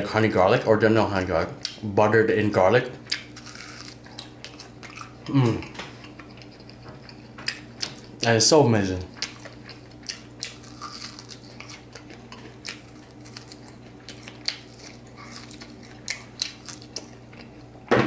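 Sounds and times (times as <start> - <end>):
crispy food crunching while chewed: 3.0 - 8.3, 9.1 - 17.8.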